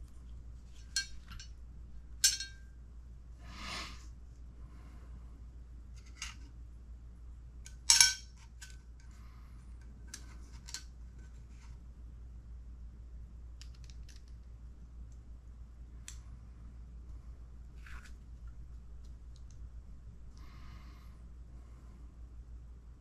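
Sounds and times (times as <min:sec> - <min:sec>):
small metal tools clinking: 0:02.2 - 0:02.6, 0:07.7 - 0:08.3.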